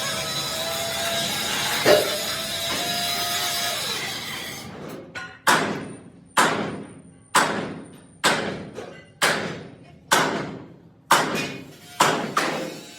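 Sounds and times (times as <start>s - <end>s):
steel grinding: 0.0s - 4.7s, 11.7s - 12.9s.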